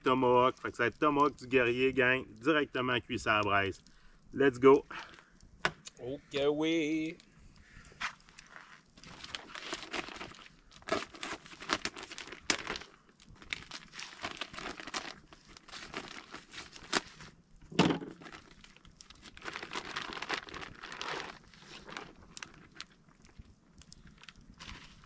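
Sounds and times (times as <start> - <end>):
packaging crinkling and tearing: 7.9 - 25.0.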